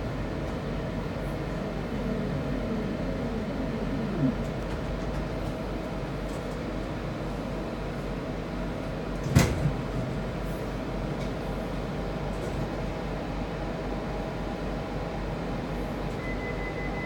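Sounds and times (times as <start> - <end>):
train interior rumble: 0.0 - 16.2.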